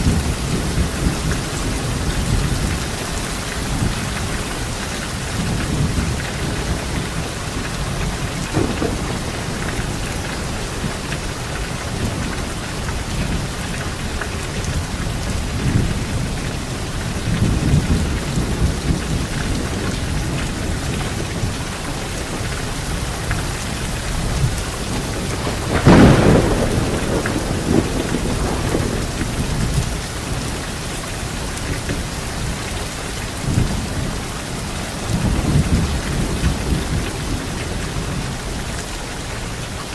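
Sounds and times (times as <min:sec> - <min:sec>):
thunder rumbling: 0:00.0 - 0:32.5
heavy rain falling: 0:00.0 - 0:39.9
sharp thunderclap: 0:05.4 - 0:12.5, 0:24.0 - 0:30.5.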